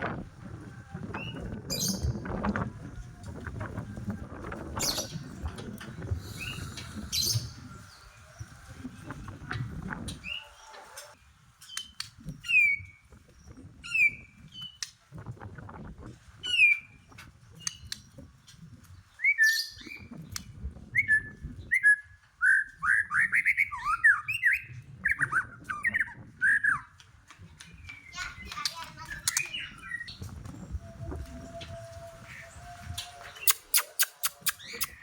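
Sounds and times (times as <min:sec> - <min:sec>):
bird whistling and warbling: 0:01.2 - 0:02.2, 0:06.2 - 0:08.0, 0:19.2 - 0:20.1, 0:21.0 - 0:26.9, 0:33.2 - 0:35.0.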